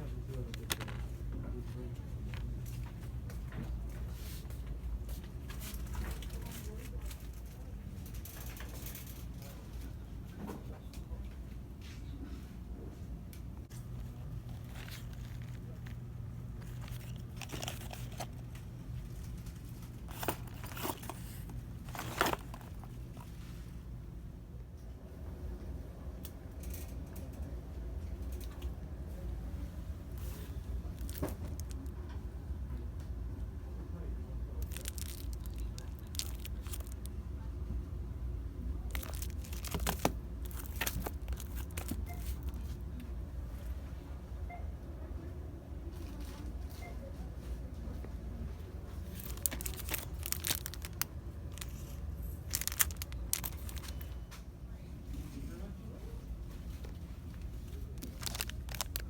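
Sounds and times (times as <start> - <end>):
steady low hum: 0.0 - 59.0
plastic packaging crinkling: 13.8 - 23.4, 30.2 - 31.9, 34.6 - 37.1, 38.8 - 42.7, 49.0 - 54.3, 56.8 - 59.0.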